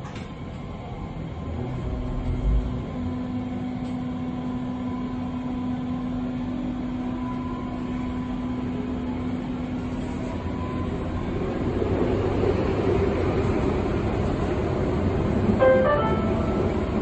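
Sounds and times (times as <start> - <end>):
train running noise: 0.0 - 17.0.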